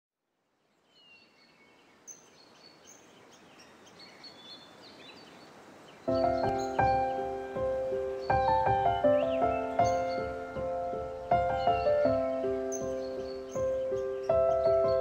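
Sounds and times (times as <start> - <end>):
faint outdoor hiss: 0.2 - 15.0
birds chirping: 0.6 - 15.0
music with held notes: 6.1 - 15.0.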